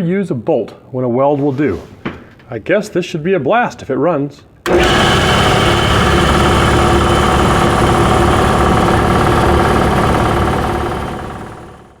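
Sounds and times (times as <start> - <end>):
air compressor running: 4.7 - 12.0.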